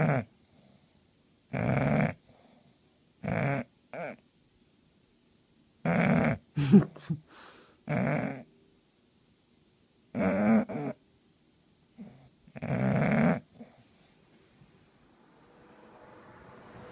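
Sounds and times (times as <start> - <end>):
dog snoring loudly: 0.0 - 0.8, 1.5 - 4.2, 5.8 - 6.5, 7.8 - 8.5, 10.1 - 11.0, 12.0 - 13.8.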